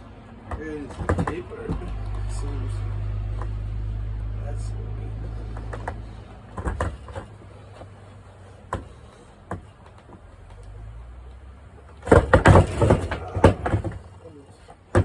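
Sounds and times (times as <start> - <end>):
skateboard knocking on ground: 0.5 - 2.2, 5.6 - 7.3, 12.0 - 14.2
low rumble: 1.3 - 6.6.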